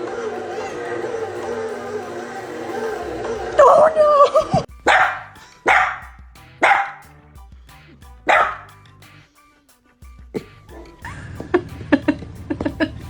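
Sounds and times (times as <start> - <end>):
dog barking: 4.4 - 7.1, 8.2 - 8.8, 10.4 - 11.4.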